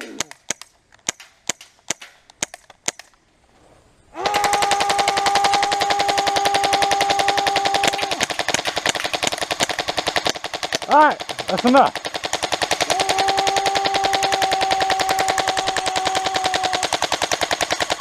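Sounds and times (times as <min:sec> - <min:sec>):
airsoft gun shots: 0:04.2 - 0:18.0.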